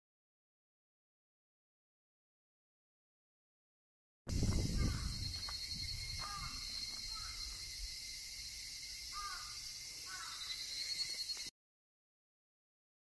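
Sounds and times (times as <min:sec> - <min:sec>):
bird calling: 0:04.3 - 0:08.0, 0:08.9 - 0:11.5.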